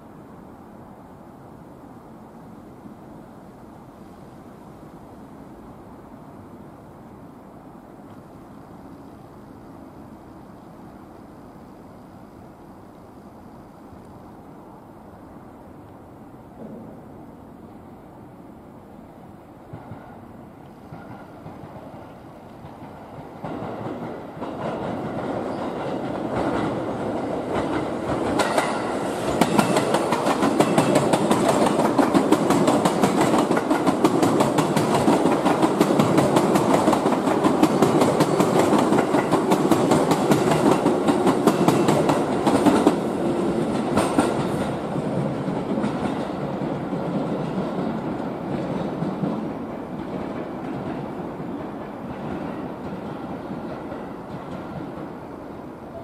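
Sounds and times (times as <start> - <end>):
train wheels clattering over joints: 20.8 - 55.2.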